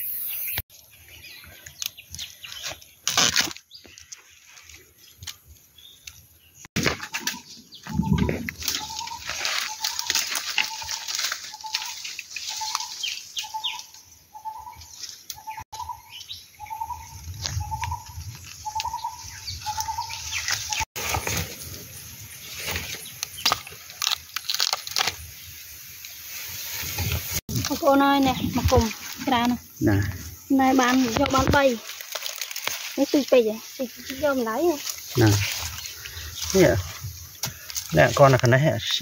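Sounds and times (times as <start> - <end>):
dry leaves crackling and rustling: 8.2 - 13.8, 17.3 - 39.0.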